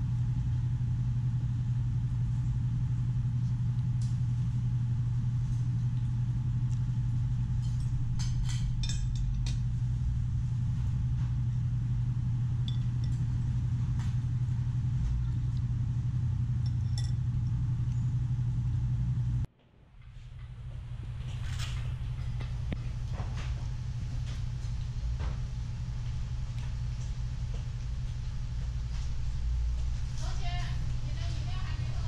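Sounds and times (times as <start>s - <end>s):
low machine hum: 0.0s - 32.0s
tableware clinking: 16.7s - 17.2s.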